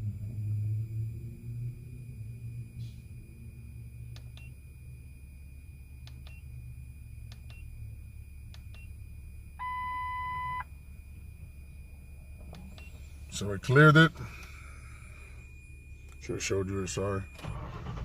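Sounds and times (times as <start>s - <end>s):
low steady hum: 0.0s - 18.0s
steady electronic beep: 7.4s - 17.5s.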